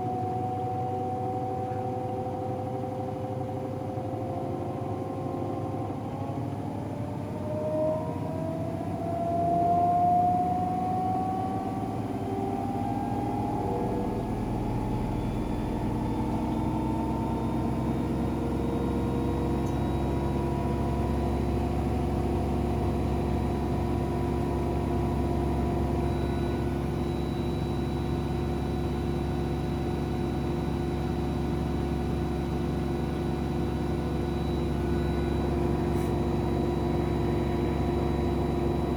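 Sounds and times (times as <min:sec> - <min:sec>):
washing machine spinning: 0:10.4 - 0:38.9.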